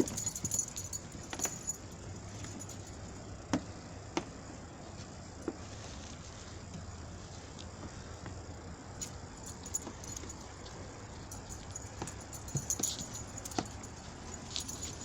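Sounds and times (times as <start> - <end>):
dog collar tags jingling: 0.0 - 3.1, 9.0 - 15.0
light clicks and steps: 9.0 - 15.0.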